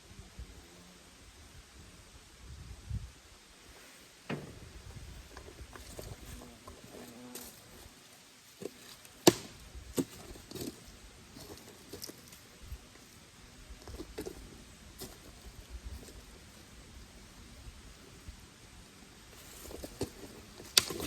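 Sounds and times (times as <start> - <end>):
campfire crackling and popping: 8.9 - 10.8, 20.0 - 21.0.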